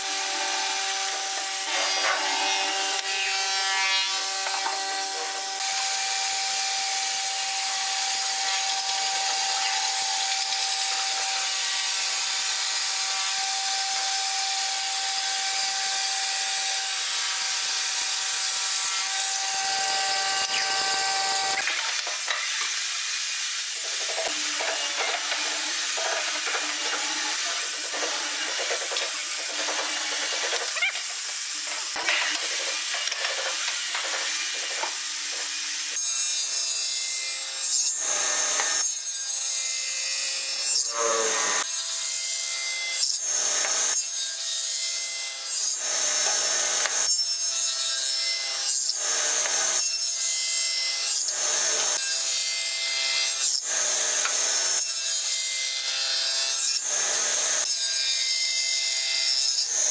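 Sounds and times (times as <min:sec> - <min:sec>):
mortiser boring into wood: 0:00.0 - 0:36.6
table saw cutting wood: 0:00.0 - 0:59.9.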